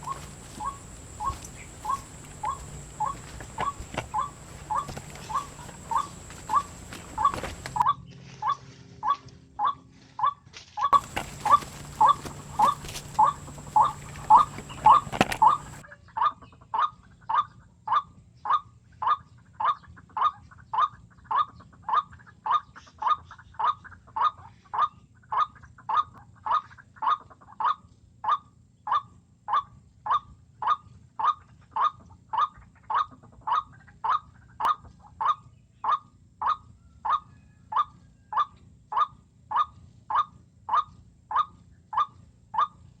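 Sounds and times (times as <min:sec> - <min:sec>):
waterhen call: 0:00.0 - 0:07.8, 0:11.0 - 0:15.8.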